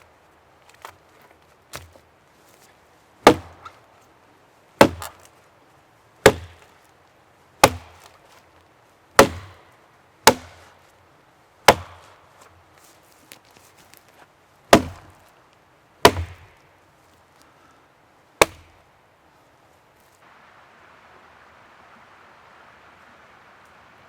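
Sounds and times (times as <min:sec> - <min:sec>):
wood chopping strokes: 0:00.0 - 0:04.1, 0:04.8 - 0:05.4, 0:06.2 - 0:07.0, 0:07.6 - 0:11.0, 0:11.6 - 0:15.4, 0:16.0 - 0:17.5, 0:18.4 - 0:18.8.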